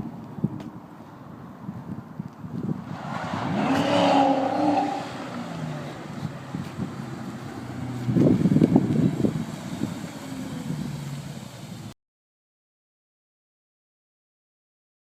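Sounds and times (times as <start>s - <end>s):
car engine accelerating: 2.7s - 11.9s.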